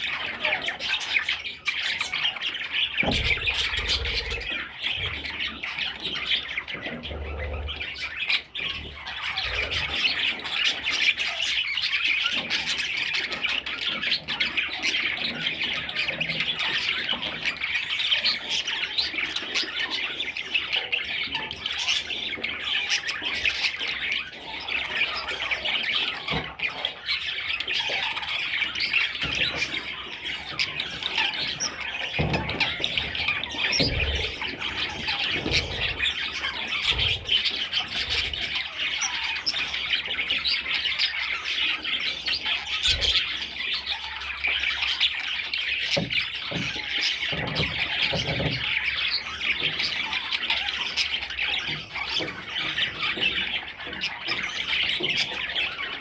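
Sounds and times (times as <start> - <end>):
budgerigars chattering and squawking: 0.0 - 56.0.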